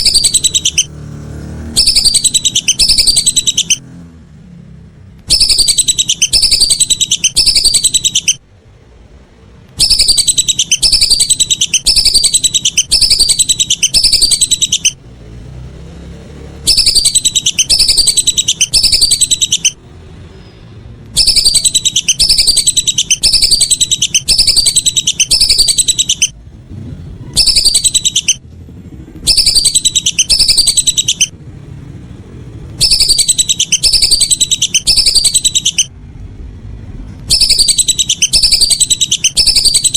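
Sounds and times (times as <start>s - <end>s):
duck whistling calls: 0.0s - 0.9s, 1.7s - 3.8s, 5.3s - 8.4s, 9.8s - 15.0s, 16.7s - 19.8s, 21.2s - 26.3s, 27.3s - 28.4s, 29.2s - 31.3s, 32.8s - 35.9s, 37.3s - 39.9s.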